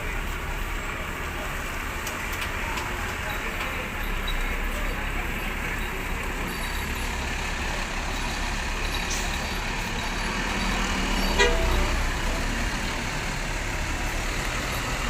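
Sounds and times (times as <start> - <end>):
bus engines rumbling: 0.0 - 15.0
short horn beep: 11.4 - 12.0.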